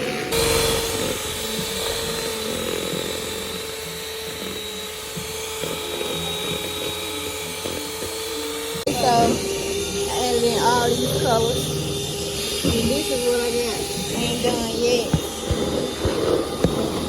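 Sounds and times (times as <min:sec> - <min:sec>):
electric hand mixer whirring: 0:00.0 - 0:17.0.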